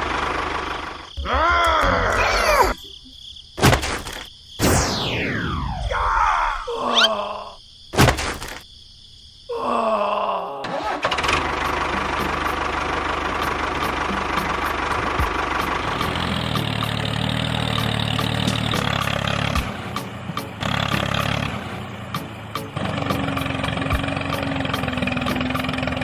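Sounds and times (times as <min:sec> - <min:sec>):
engine starting and idling: 0:00.0 - 0:01.1, 0:10.6 - 0:19.6, 0:22.8 - 0:26.0.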